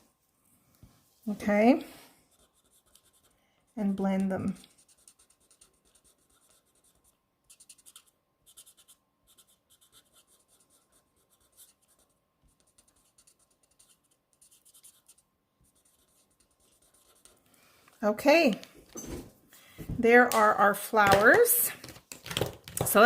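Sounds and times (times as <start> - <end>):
markers scratching on card: 2.3 - 17.4.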